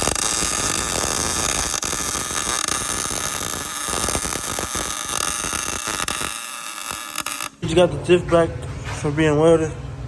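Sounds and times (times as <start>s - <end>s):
arc welder crackling and hissing: 0.0s - 7.6s.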